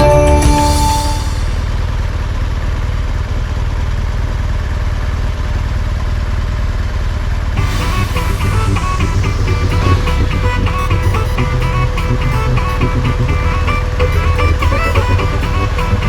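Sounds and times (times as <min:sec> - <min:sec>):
music: 0:00.0 - 0:01.8, 0:07.6 - 0:16.0
rushing noise: 0:00.0 - 0:02.6, 0:07.4 - 0:16.0
motorcycle engine rumbling: 0:07.4 - 0:16.0.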